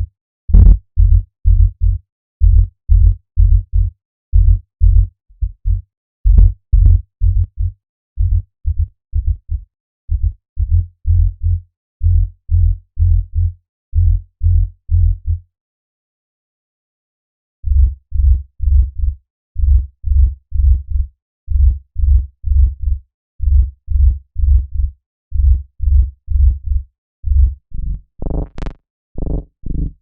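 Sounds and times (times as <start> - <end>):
synth bass notes: 0.0 - 0.8, 27.8 - 30.0.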